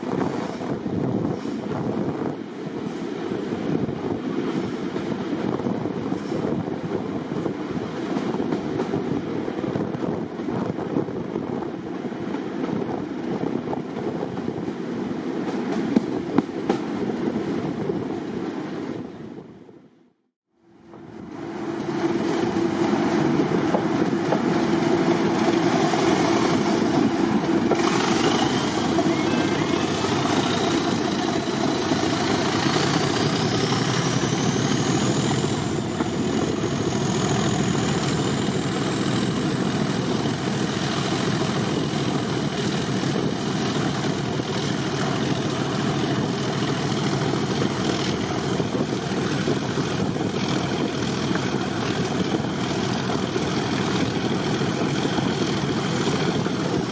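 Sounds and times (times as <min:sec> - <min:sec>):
diesel locomotive engine running: 0:20.5 - 0:56.9.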